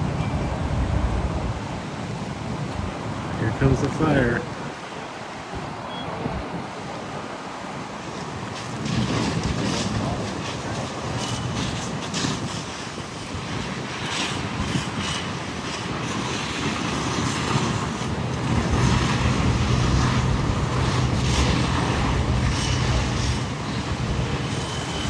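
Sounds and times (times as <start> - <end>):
wind noise: 0.0 - 25.0
large vehicle engine running: 16.9 - 25.0.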